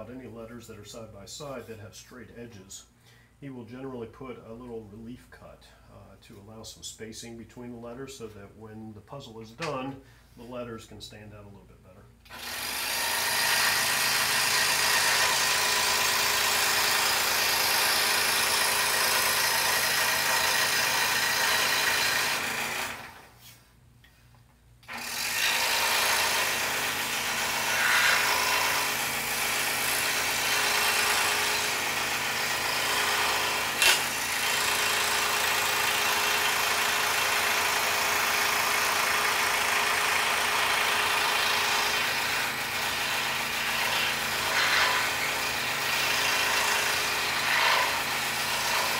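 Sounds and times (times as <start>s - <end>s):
scroll saw buzzing: 12.3s - 23.4s, 24.8s - 48.9s.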